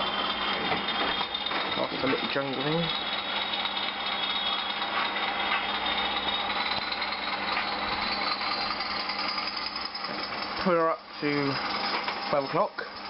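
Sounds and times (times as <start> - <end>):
diesel engine sound from small speaker: 0.0 - 9.8
model train motor and wheel noise: 0.0 - 13.0.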